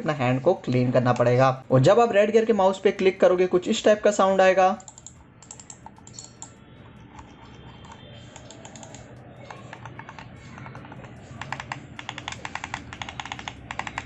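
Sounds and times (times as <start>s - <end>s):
mouse buttons clicking: 4.8s - 14.0s.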